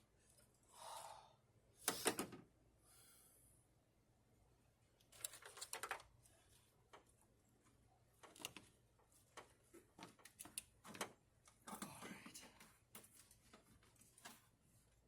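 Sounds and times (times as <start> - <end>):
tools clicking and knocking: 8.2 - 8.7, 9.4 - 11.2.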